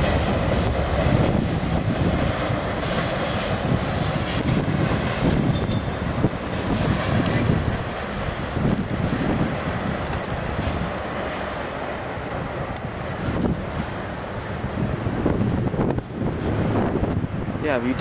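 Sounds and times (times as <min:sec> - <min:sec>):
train wheels rumbling and clattering: 0:00.0 - 0:12.0.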